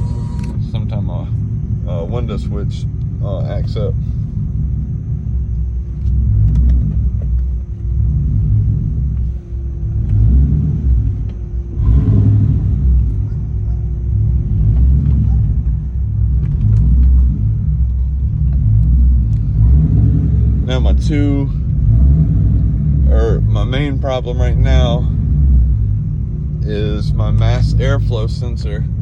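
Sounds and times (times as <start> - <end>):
car exhaust rumbling: 0.0 - 29.0.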